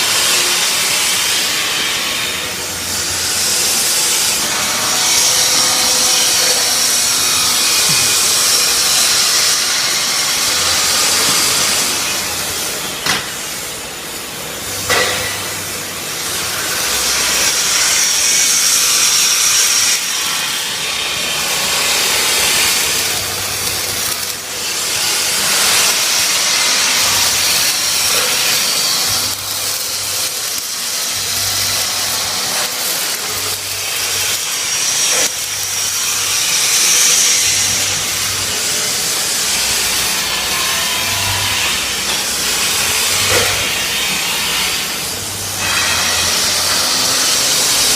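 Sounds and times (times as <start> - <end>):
welding arc sizzling: 0.0 - 47.9.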